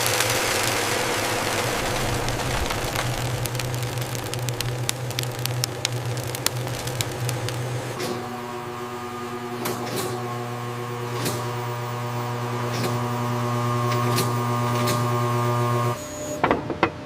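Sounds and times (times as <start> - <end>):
sharp clicks and clacks: 0.0 - 7.7
factory machinery humming: 0.0 - 12.4.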